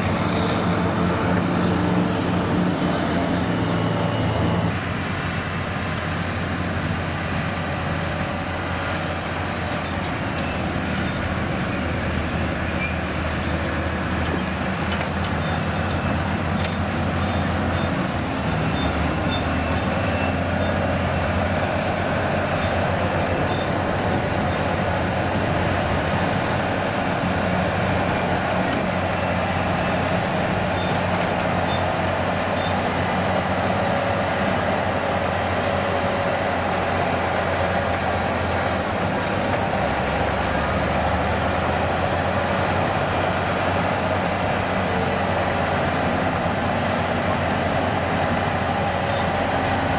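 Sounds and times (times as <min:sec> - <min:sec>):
heavy diesel engine running: 0:00.0 - 0:49.9.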